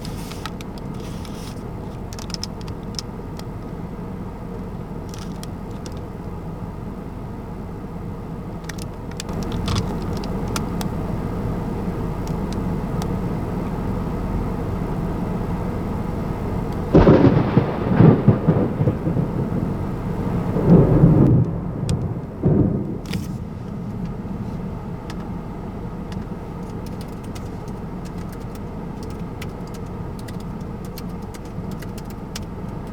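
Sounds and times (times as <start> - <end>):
steady background noise: 0.0 - 32.9
thunder crack and rumble: 16.9 - 24.3.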